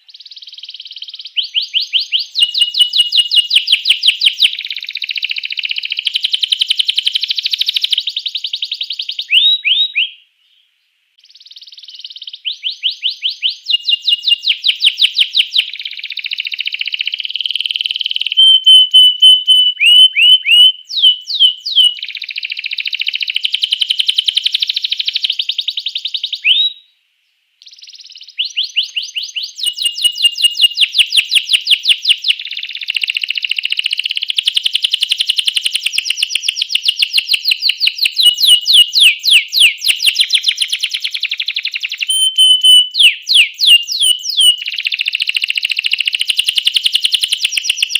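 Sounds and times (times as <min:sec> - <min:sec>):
canary singing trills: 0:00.0 - 0:10.6, 0:11.2 - 0:26.9, 0:27.6 - 0:47.9
rising whistled notes: 0:42.1 - 0:44.2.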